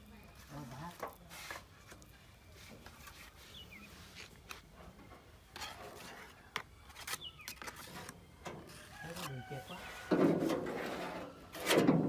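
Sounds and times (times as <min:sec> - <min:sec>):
rubbing and scraping on metal panel: 0:07.0 - 0:12.0.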